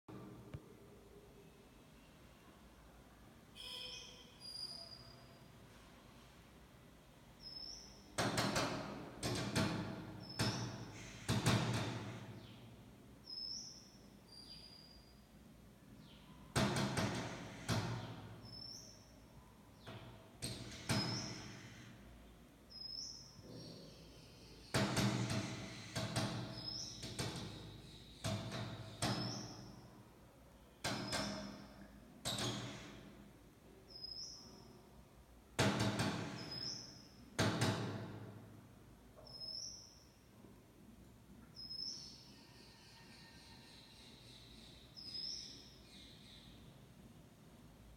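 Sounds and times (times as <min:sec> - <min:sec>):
bird knocking on window glass: 0:08.2 - 0:12.5, 0:16.5 - 0:18.4, 0:24.7 - 0:29.7, 0:30.8 - 0:33.1, 0:35.6 - 0:38.3.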